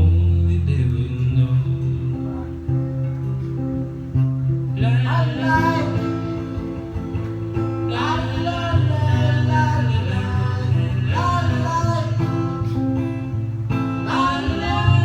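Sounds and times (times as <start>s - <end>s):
acoustic guitar chords: 0.0s - 15.0s
person singing: 4.8s - 6.9s, 7.8s - 12.9s, 14.0s - 15.0s.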